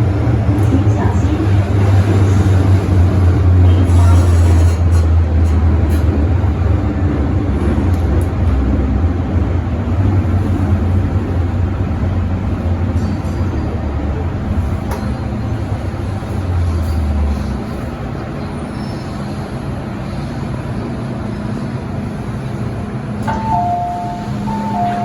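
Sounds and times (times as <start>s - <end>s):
train interior rumble: 0.0s - 25.0s
two-note electronic chime: 23.3s - 25.0s.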